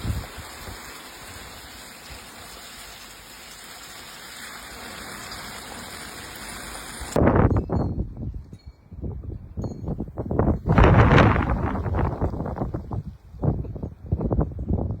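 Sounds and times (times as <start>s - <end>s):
storm wind hissing: 0.0s - 2.3s, 10.3s - 13.1s.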